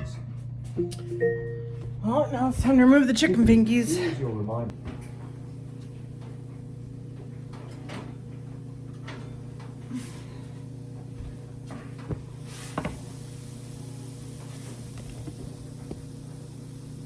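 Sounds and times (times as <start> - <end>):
low appliance hum: 0.0 - 17.0.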